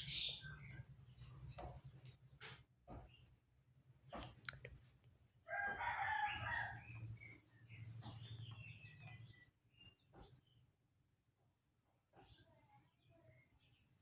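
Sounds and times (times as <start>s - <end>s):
bird calling: 0.0s - 0.6s.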